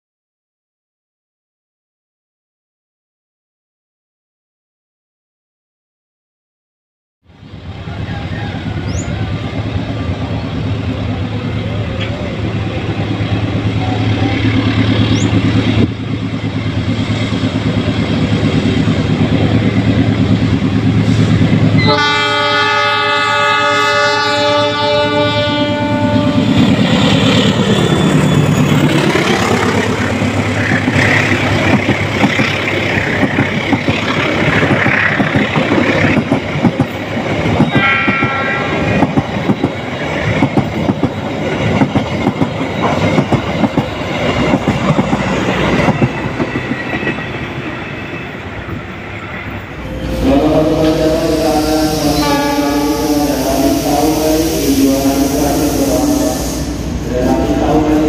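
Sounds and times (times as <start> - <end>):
locomotive engine passing: 7.3 - 58.0
train horn blast: 21.0 - 26.8, 37.7 - 39.0, 49.8 - 58.0
train wheels clattering over track: 26.2 - 48.9.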